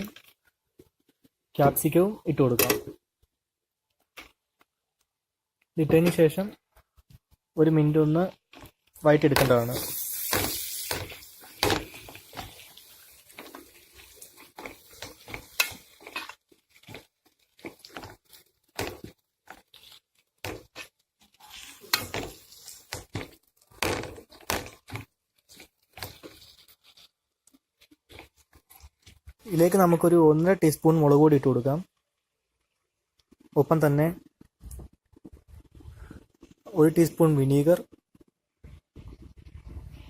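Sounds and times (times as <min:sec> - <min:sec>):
vegetables sauteing: 0:00.0 - 0:03.2, 0:05.2 - 0:32.6
spatula scraping frying pan: 0:08.5 - 0:27.2.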